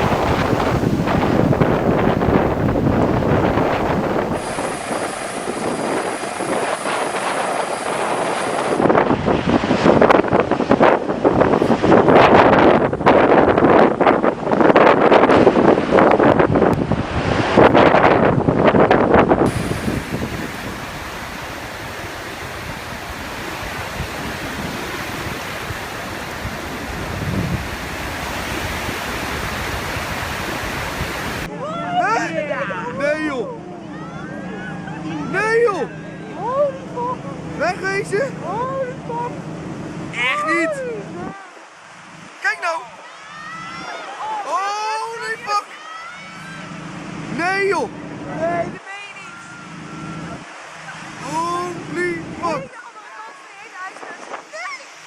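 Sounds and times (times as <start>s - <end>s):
storm wind on microphone: 0.0s - 31.6s, 53.8s - 55.0s
rough sea: 0.0s - 55.0s
waves breaking: 0.0s - 55.0s.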